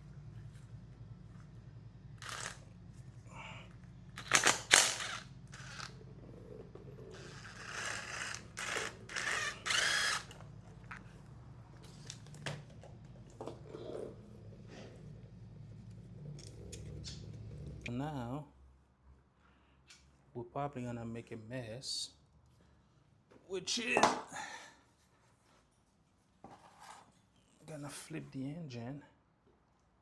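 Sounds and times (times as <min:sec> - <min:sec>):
power tool bursts: 0:02.2 - 0:02.7, 0:04.2 - 0:06.0, 0:07.1 - 0:10.4.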